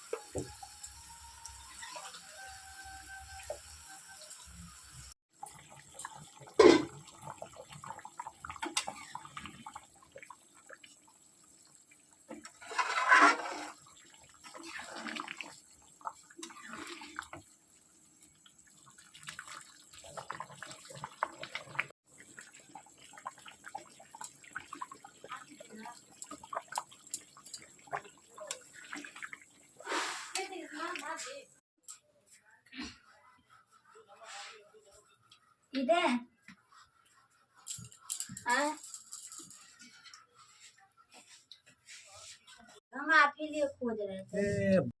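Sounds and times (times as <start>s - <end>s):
utensils knocking and clattering: 37.7s - 40.0s.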